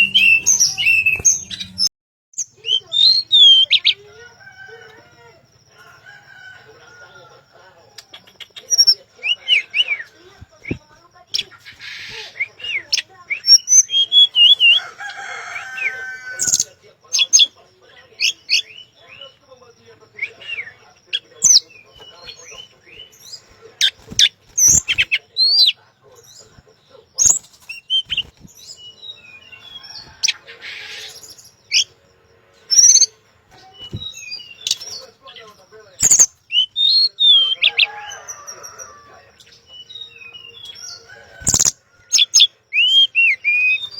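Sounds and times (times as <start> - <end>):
songbird chirping and whistling: 0.0 - 43.9.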